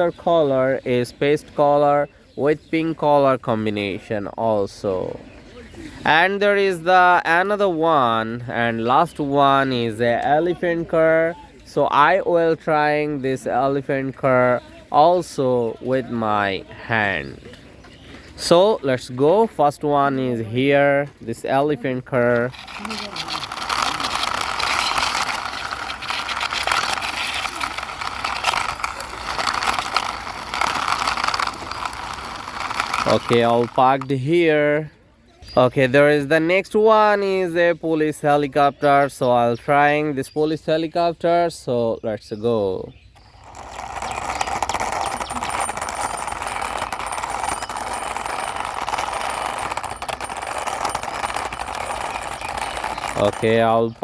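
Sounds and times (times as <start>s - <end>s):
toy car wheels rolling: 22.0s - 34.3s, 43.1s - 54.0s.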